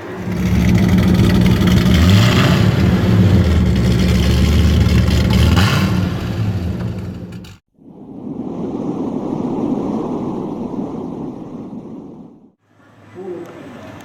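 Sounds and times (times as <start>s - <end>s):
car engine revving at fast idle: 0.0s - 7.6s.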